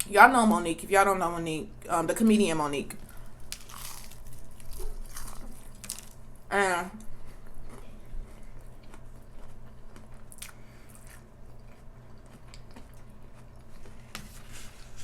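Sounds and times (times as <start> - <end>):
person chewing crunchy food: 3.0 - 6.3, 7.0 - 15.0.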